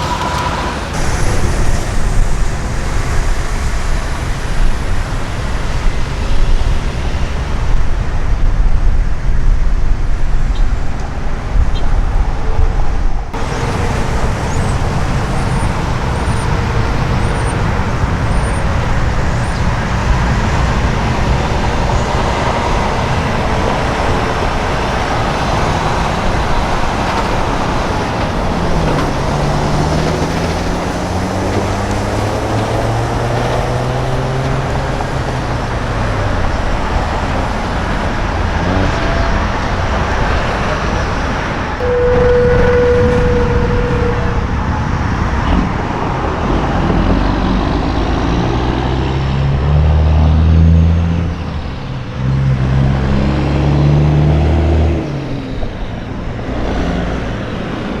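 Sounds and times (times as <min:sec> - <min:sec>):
diesel trucks passing: 0:00.0 - 0:58.0
truck engine shifting gears: 0:00.0 - 0:58.0.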